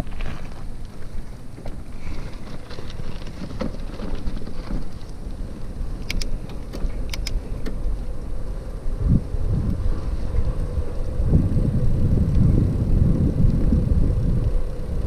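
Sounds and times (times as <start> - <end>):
rattles and clicks: 0.0 - 8.1
bicycle rumbling on rough trail: 0.0 - 15.0.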